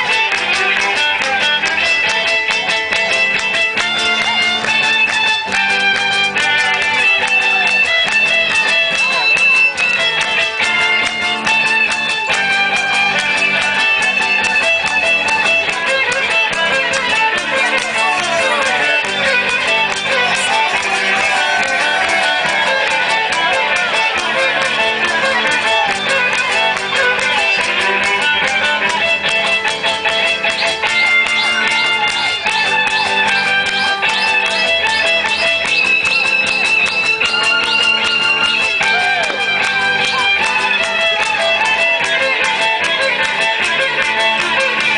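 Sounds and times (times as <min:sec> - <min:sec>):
plucked and strummed guitar music: 0:00.0 - 0:44.9.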